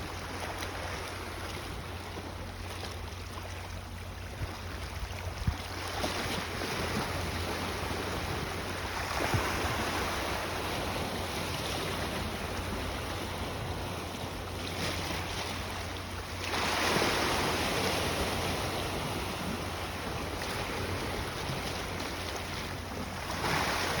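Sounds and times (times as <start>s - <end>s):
wind on microphone: 4.3s - 14.6s
sea waves surging: 5.8s - 24.0s.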